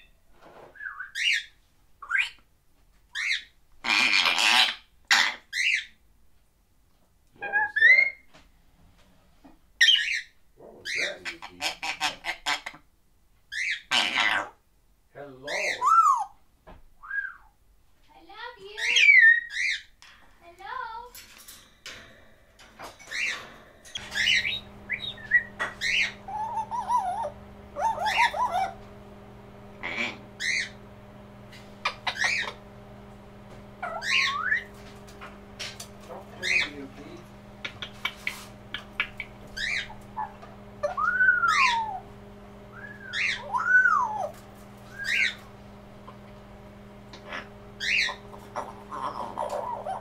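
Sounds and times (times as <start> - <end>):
parrots chirping and warbling: 0.8 - 2.4, 3.1 - 6.0, 7.4 - 8.2, 9.8 - 12.9, 13.5 - 14.6, 15.4 - 16.4, 18.6 - 50.0
steady low hum: 20.0 - 50.0.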